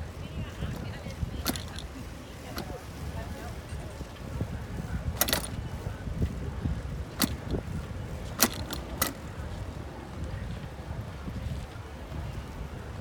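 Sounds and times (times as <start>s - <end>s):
wind and tyre rumble: 0.0s - 13.0s
bike rattling clicks: 0.7s - 2.8s, 5.1s - 9.8s.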